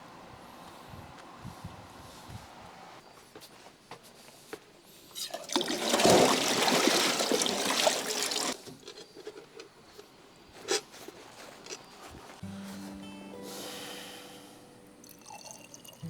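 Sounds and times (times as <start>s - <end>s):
liquid pouring: 5.3s - 8.6s, 15.0s - 16.0s.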